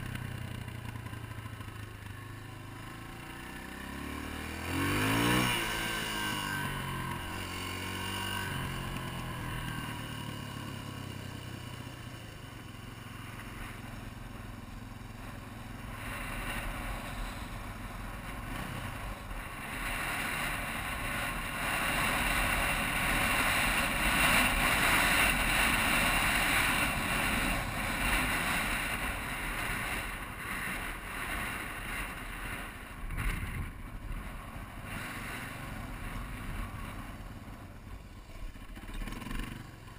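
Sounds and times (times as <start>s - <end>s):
motorcycle engine: 0.0s - 39.9s
wind rush on microphone: 15.9s - 37.4s.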